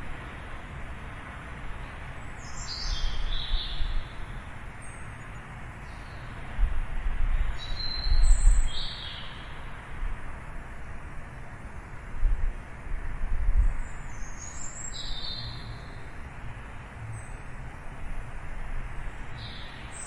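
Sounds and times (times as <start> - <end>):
outdoor hum with low rumble: 0.0 - 20.0
small birds chirping: 1.8 - 6.4, 7.3 - 9.7, 13.6 - 16.2, 19.0 - 20.0.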